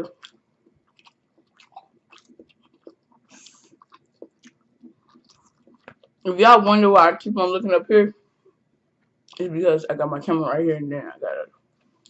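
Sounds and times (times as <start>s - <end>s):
person chewing food: 0.1s - 6.3s.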